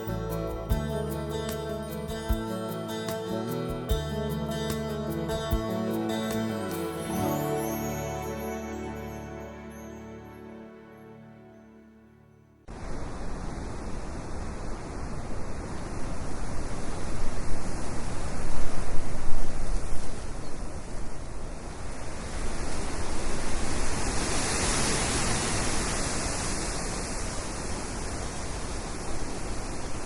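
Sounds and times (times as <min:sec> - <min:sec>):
wind: 0:00.0 - 0:12.0, 0:12.6 - 0:30.0
sea surf rushing: 0:21.6 - 0:30.0.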